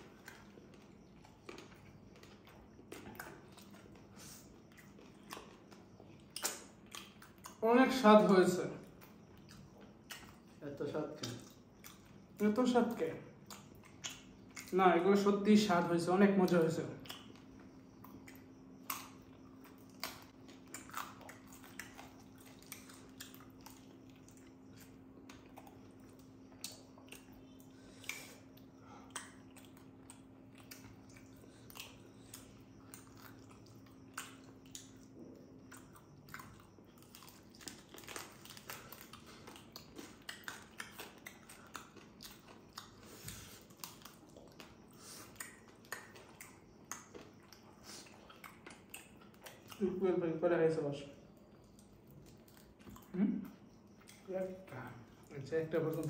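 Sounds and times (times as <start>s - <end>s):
chewing grilled meat: 0.0s - 50.4s, 51.1s - 56.0s
faint steady hum: 0.0s - 56.0s
soft mouth clicks and smacks: 0.2s - 7.6s, 9.0s - 10.6s, 11.2s - 12.2s, 13.4s - 14.8s, 17.0s - 36.7s, 37.6s - 49.8s.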